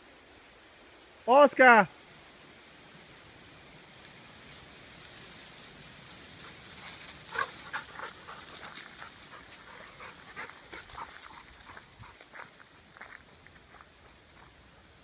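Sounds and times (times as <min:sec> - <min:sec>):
dog panting: 0:06.4 - 0:12.6.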